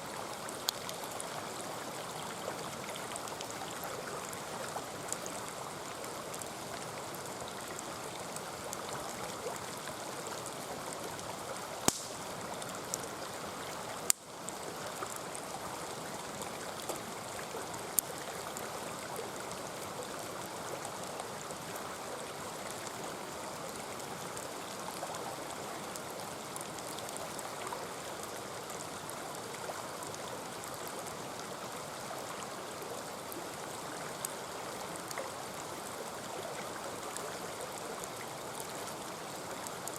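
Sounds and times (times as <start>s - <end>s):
stream flowing over rocks: 0.0s - 39.9s
campfire pops and crackles: 0.4s - 1.2s, 11.8s - 13.3s, 14.0s - 15.4s, 17.9s - 18.1s.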